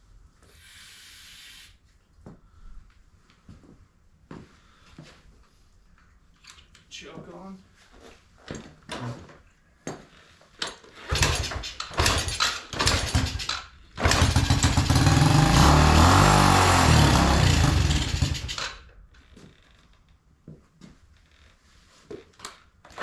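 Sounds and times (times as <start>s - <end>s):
small motorcycle engine starting: 11.0s - 18.9s.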